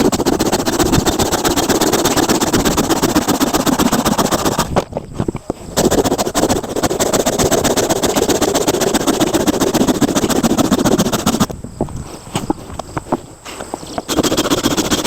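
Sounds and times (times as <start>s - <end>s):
chainsaw cutting wood: 0.0s - 4.8s, 5.8s - 11.5s, 14.1s - 15.0s.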